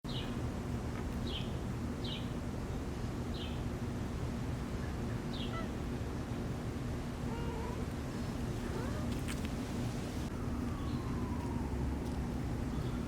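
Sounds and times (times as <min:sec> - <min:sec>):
low background hum: 0:00.1 - 0:13.0
bird chirping: 0:05.1 - 0:05.7.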